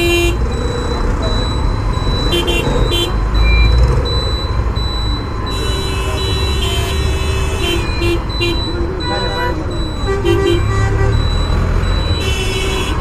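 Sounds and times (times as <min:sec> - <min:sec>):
vehicle horn: 0:00.0 - 0:00.5, 0:02.3 - 0:03.2, 0:05.5 - 0:13.0
wind and road rumble: 0:00.0 - 0:13.0.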